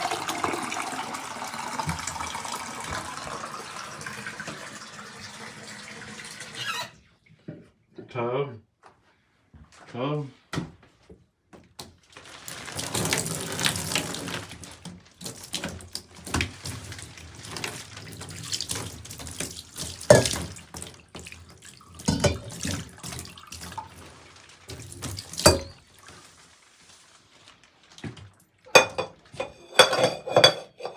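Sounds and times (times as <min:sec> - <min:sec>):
tap water running into bathtub: 0:00.0 - 0:07.0, 0:11.6 - 0:30.9
water splashes: 0:12.1 - 0:28.6.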